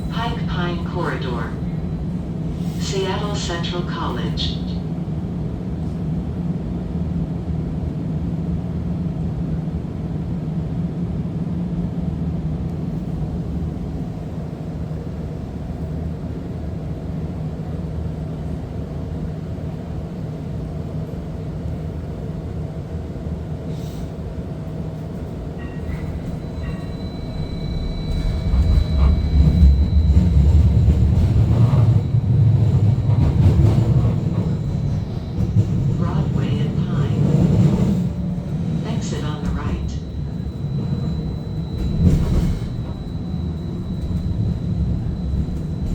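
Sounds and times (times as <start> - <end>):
streetcar rumble and hum: 0.0 - 45.9
faint high whine: 25.6 - 37.2, 38.0 - 45.9.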